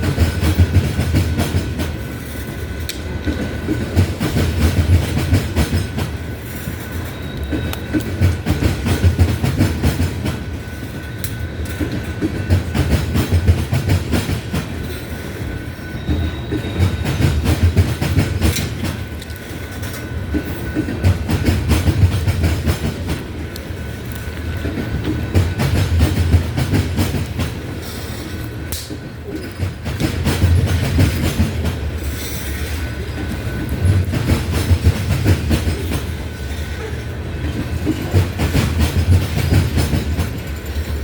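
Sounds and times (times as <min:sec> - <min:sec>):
train cars rolling over rail joints: 0:00.0 - 0:41.0.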